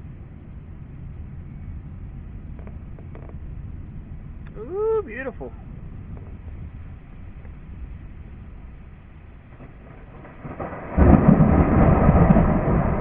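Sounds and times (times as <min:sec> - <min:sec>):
thunder rumble and crack: 0:05.7 - 0:13.0.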